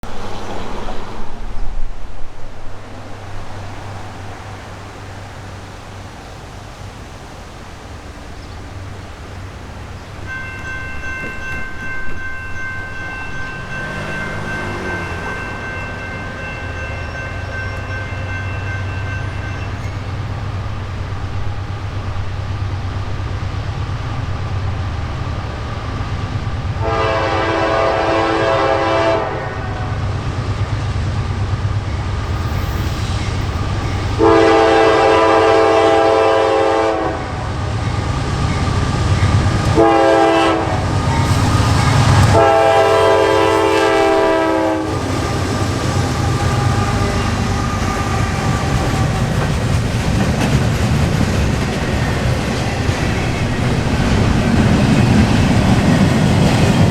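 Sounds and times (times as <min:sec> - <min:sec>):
train rumbling past: 0:00.0 - 0:56.9
locomotive air horn: 0:26.8 - 0:30.0, 0:34.2 - 0:37.5, 0:39.7 - 0:48.9.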